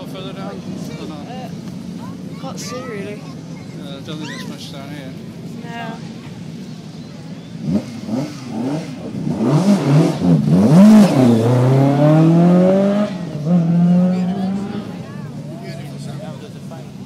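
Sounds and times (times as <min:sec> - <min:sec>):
rally car engine revving: 0:07.4 - 0:17.0.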